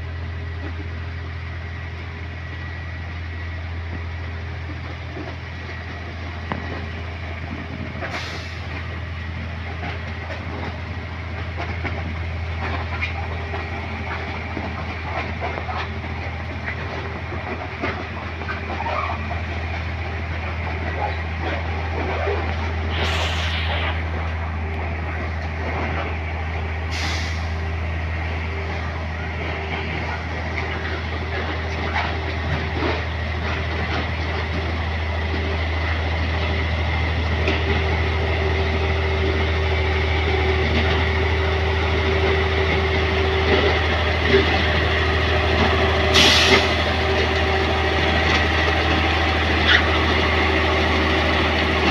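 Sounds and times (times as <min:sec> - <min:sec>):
train diesel engine humming: 0:00.0 - 0:51.9
sharp air hisses: 0:22.9 - 0:24.5, 0:26.9 - 0:27.6, 0:46.2 - 0:46.7.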